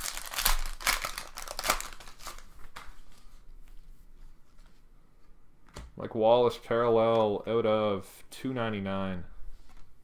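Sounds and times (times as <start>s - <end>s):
foil wrappers crinkling: 0.0s - 3.4s.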